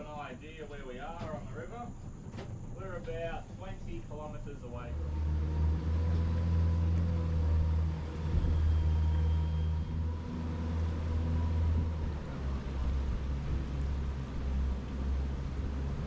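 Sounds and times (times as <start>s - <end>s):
boat engine humming: 0.0s - 16.0s
faint steady whine: 6.4s - 16.0s.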